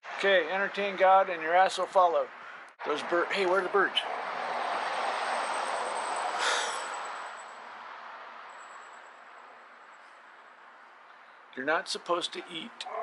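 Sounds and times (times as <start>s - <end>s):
vehicle passing by: 2.8s - 10.4s.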